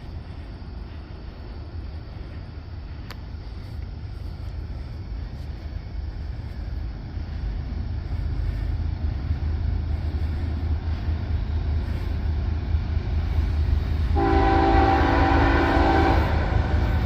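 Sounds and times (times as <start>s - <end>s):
freight train rumbling past: 0.0s - 17.0s
locomotive horn chord: 14.2s - 17.0s.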